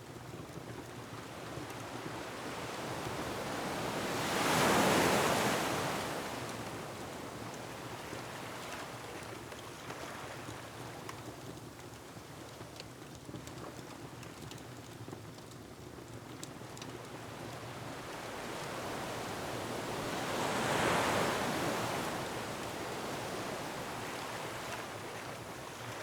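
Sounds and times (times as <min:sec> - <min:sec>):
wood fire crackling: 0:10.5 - 0:19.1
ocean wave breaking: 0:18.4 - 0:24.7.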